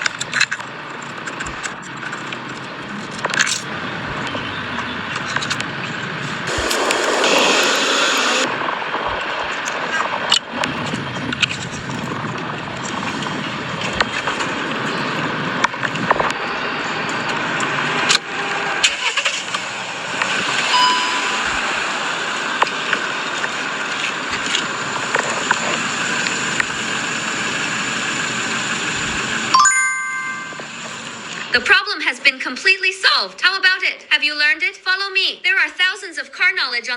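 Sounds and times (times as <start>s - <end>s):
car running: 0.0s - 31.8s
brief high tone: 20.7s - 21.8s, 29.5s - 31.0s.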